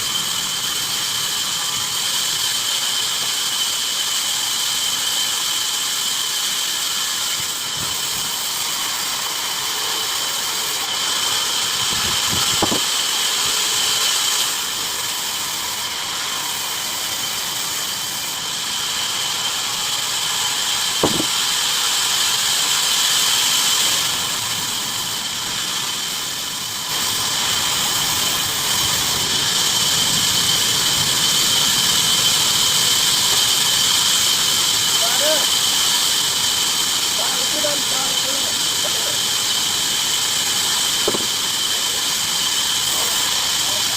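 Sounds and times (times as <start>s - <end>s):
bandsaw cutting wood: 2.7s - 24.5s, 27.2s - 43.9s
sharp knocks: 21.0s - 21.3s, 41.0s - 41.4s.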